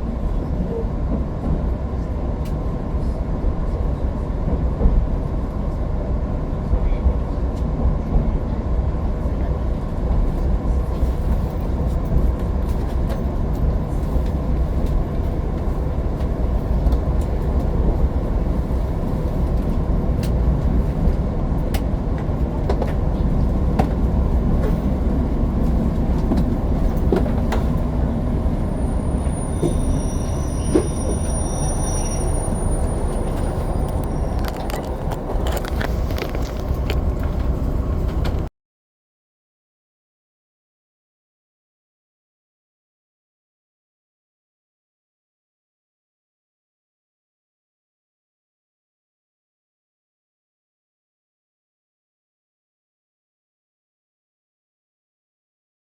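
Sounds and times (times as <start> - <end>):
train rumbling on rails: 0.0 - 38.5
faint high-pitched squeal: 28.6 - 34.9.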